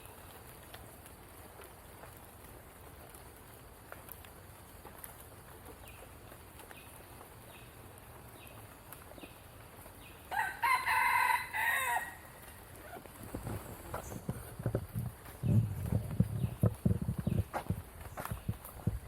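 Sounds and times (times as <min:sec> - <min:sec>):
rooster crowing: 0:10.3 - 0:12.3.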